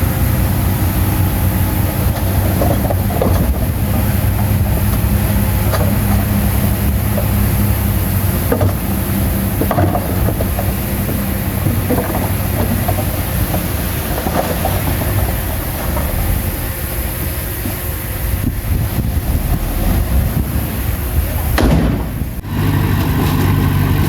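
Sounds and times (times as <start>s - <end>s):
metallic clanks and rattles: 0.0s - 17.8s
diesel engine hum: 0.0s - 24.0s.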